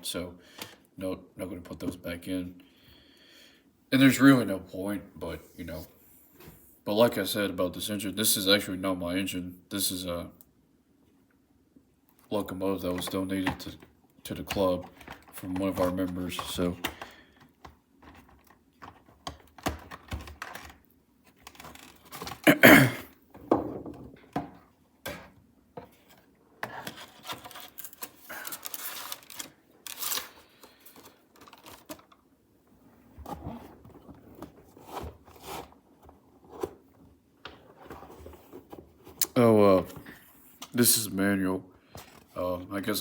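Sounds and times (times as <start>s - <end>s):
plastic and cardboard rustling: 12.9s - 22.5s, 25.2s - 32.2s, 33.0s - 40.7s.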